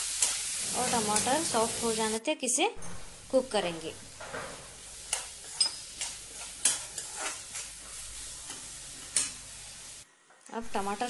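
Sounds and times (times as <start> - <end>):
onions sizzling in oil: 0.0 - 2.2, 3.2 - 10.1
spoon scraping a pan: 0.1 - 2.2, 4.1 - 9.9.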